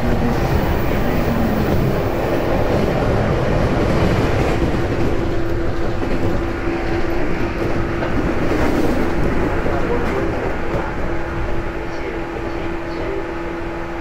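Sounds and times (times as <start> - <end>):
electric train hum: 0.0 - 14.0
train wheels rumbling: 0.0 - 14.0.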